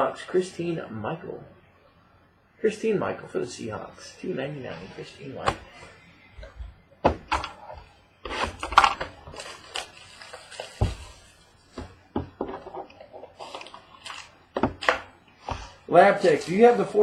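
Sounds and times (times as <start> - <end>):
cards and packaging handled: 8.3 - 15.0.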